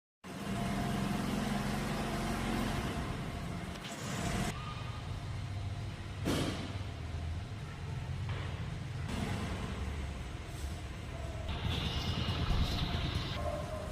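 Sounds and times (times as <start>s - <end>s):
motorcycle engine running: 11.5s - 13.4s.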